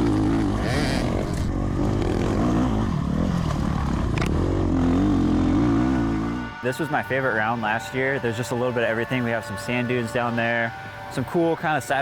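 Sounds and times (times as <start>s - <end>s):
dirt-bike engines revving: 0.0s - 9.4s.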